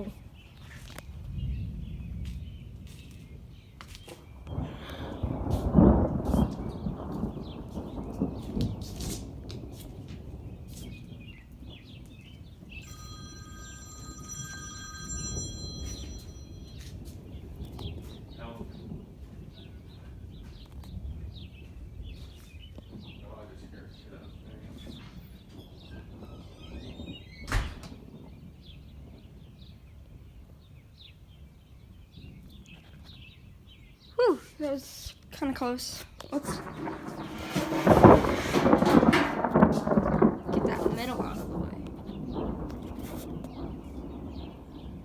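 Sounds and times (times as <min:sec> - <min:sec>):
birds chirping: 0:00.0 - 0:08.8, 0:09.6 - 0:45.0
thunder rumbling: 0:00.0 - 0:32.6, 0:35.4 - 0:45.0
sharp thunder crack: 0:04.4 - 0:12.8, 0:36.4 - 0:45.0.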